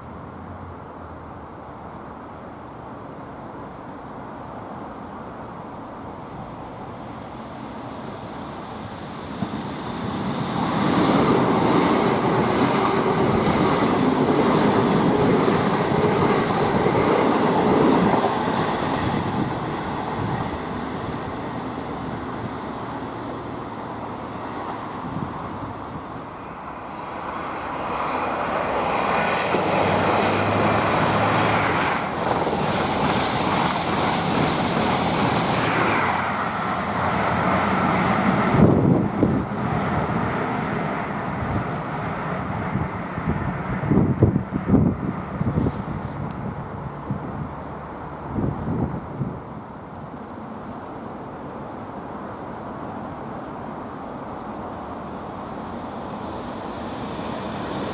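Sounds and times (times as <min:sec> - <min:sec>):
train passing on rails: 0:00.0 - 0:57.9.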